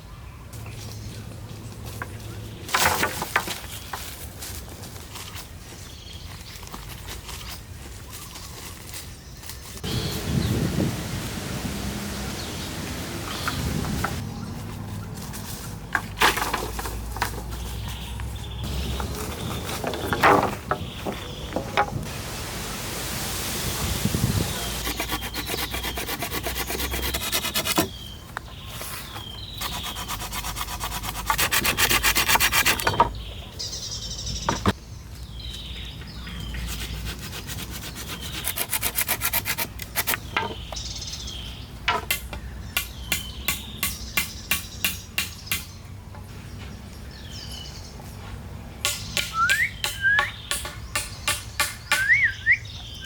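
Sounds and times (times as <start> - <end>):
small birds chirping: 5.2 - 10.9, 12.1 - 15.3, 17.4 - 21.8, 24.2 - 53.0
hand tool rasping on wood: 24.8 - 27.9, 29.6 - 32.9, 36.8 - 40.2.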